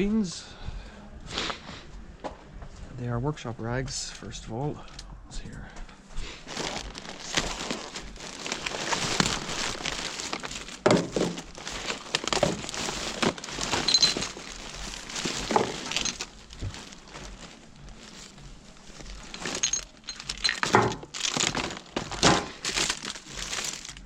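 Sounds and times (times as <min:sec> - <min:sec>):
plastic bag rustling: 0:06.2 - 0:24.0
items knocking and clinking: 0:06.5 - 0:24.0.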